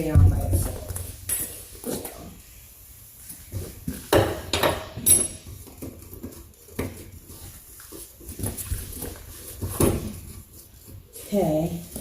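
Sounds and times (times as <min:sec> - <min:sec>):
wrenches clinking on metal: 0:04.6 - 0:05.5.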